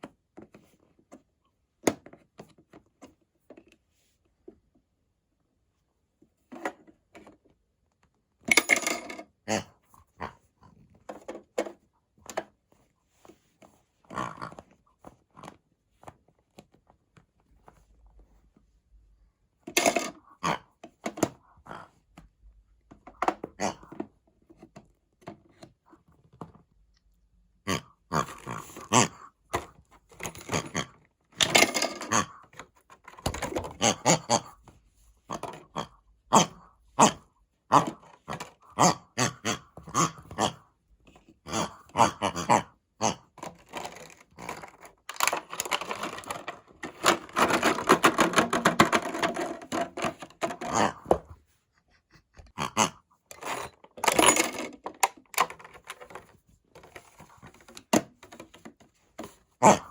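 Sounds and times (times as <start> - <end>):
plastic toys clacking and scraping: 6.4 - 7.6, 8.4 - 18.1, 19.6 - 26.7, 27.7 - 51.6, 52.2 - 59.9
toy washing machine drum rattling: 19.7 - 20.2, 31.4 - 32.3, 43.4 - 51.2, 53.3 - 58.6.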